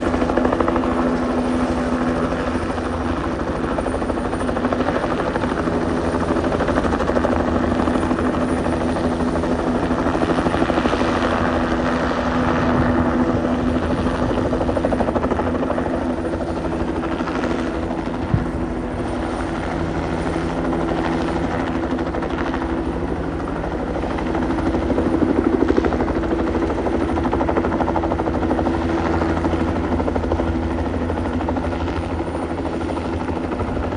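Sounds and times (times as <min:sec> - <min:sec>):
helicopter rotor chop and engine whine: 0:00.0 - 0:33.9.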